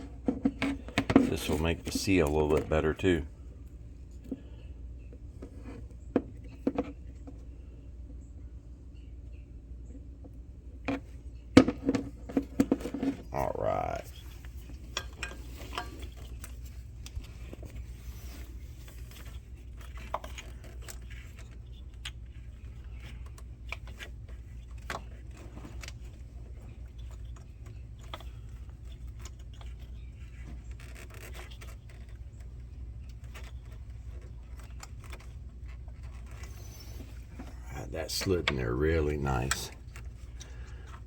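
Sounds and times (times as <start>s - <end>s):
steady low hum: 0.0s - 41.0s
rubber and plastic scrapes: 12.1s - 41.0s.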